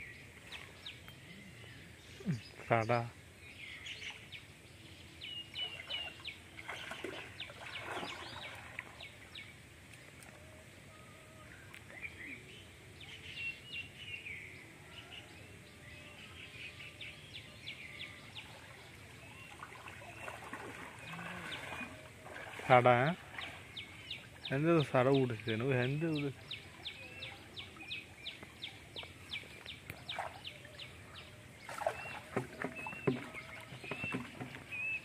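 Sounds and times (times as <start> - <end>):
birds chirping and whistling: 29.0 - 35.0.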